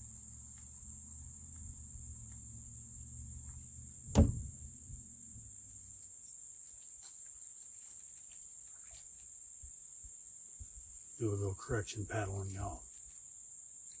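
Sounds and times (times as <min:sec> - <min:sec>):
insects hissing: 0:00.0 - 0:14.0
paddle knocking canoe hull: 0:04.1 - 0:04.7.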